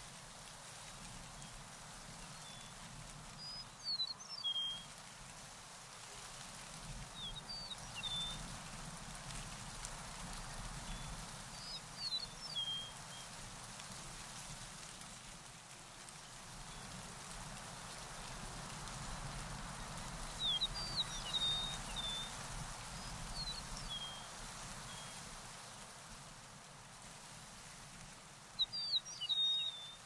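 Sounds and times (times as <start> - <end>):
steady outdoor hiss: 0.0 - 30.0
songbird chirping: 2.2 - 5.0, 19.9 - 25.2, 28.6 - 30.0.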